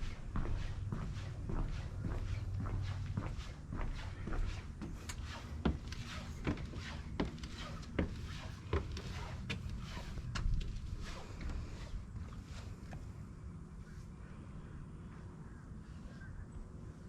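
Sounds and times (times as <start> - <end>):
footsteps on wooden boardwalk: 0.0 - 13.2.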